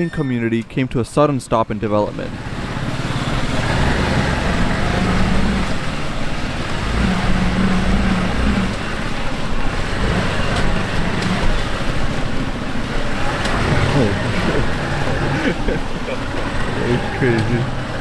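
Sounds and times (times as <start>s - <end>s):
road noise: 0.0s - 18.0s
wind: 0.0s - 18.0s
vehicle engine hum: 1.6s - 18.0s.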